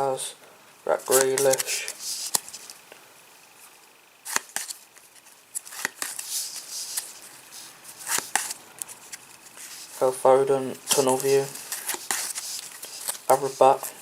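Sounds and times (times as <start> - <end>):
cards sliding rustles: 0.9 - 2.8, 3.6 - 10.1, 10.7 - 14.0
trading cards snapping: 1.1 - 2.5, 4.3 - 4.8, 5.6 - 7.0, 8.0 - 8.6, 10.9 - 13.3.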